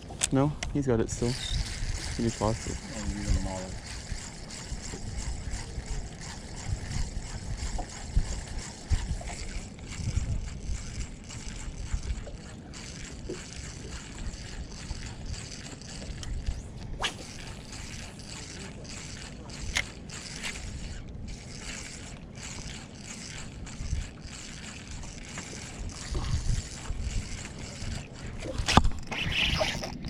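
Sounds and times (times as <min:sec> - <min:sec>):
water sloshing and gurgling: 0:00.0 - 0:30.0
wind gusting on microphone: 0:00.6 - 0:12.3, 0:23.5 - 0:30.0.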